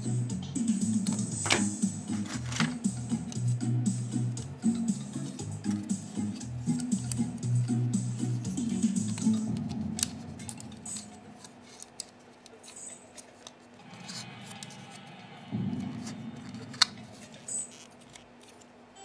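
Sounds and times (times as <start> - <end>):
small plastic parts clicking: 9.0 - 13.6.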